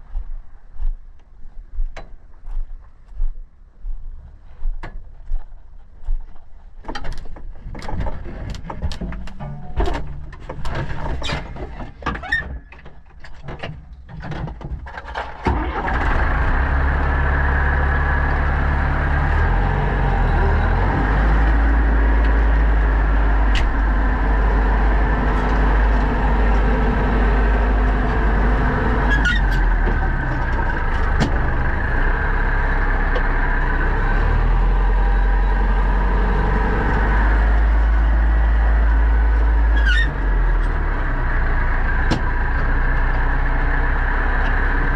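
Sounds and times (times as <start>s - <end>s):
tractor diesel engine running: 14.8s - 44.9s.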